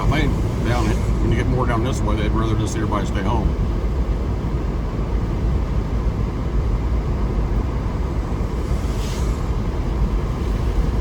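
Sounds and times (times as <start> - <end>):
vehicle driving rumble: 0.0 - 11.0
brief hiss: 8.3 - 10.7.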